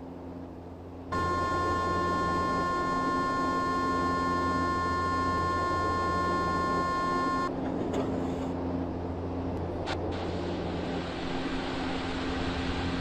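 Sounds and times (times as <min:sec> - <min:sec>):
train car low hum: 0:00.0 - 0:13.0
buzzy electronic tone: 0:01.1 - 0:07.5.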